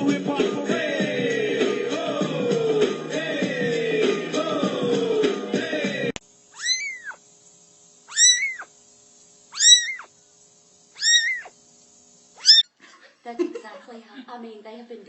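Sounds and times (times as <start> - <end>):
background music: 0.0 - 6.1
cat meowing: 6.6 - 7.2, 8.1 - 8.7, 9.5 - 10.1, 11.0 - 11.5, 12.4 - 12.6.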